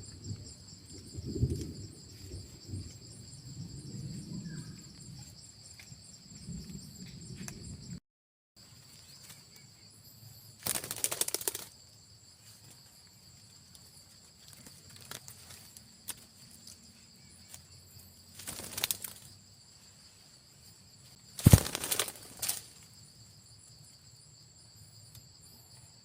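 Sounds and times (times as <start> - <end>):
rapid fluttering: 10.6 - 11.7, 18.3 - 19.3, 21.4 - 22.8.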